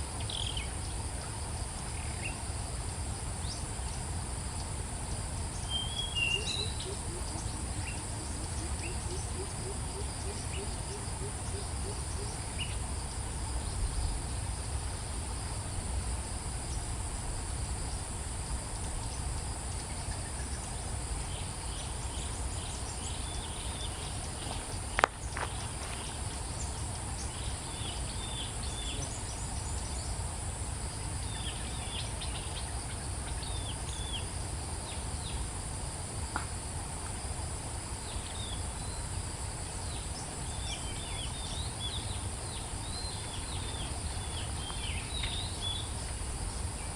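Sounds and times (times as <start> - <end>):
high-pitched insect drone: 0.0 - 36.4.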